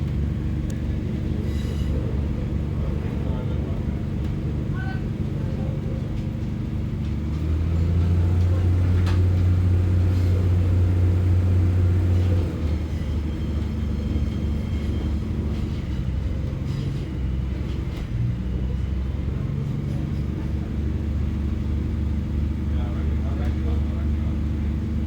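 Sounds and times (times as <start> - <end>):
railbus diesel engine droning: 0.0 - 25.0.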